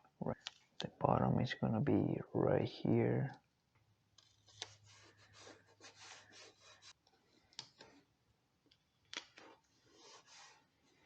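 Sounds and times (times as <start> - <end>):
paper and tape rubbing on metal: 4.3 - 7.0, 9.7 - 11.0.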